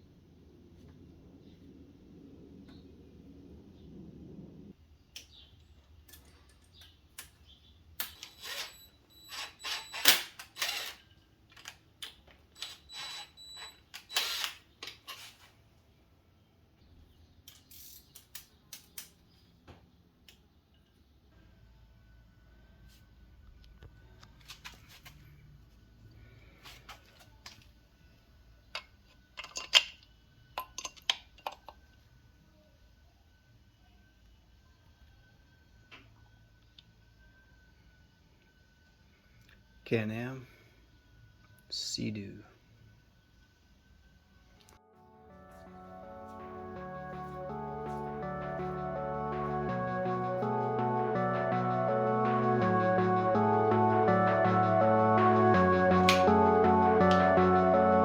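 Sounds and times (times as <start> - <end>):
metal tools clinking and scraping: 28.8 - 30.0
metal tools clinking and clanking: 28.8 - 31.7.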